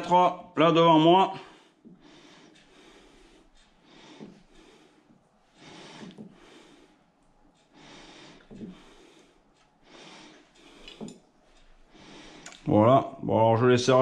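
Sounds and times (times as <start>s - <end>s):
man breathing through his nose: 1.5s - 7.1s, 7.7s - 11.2s.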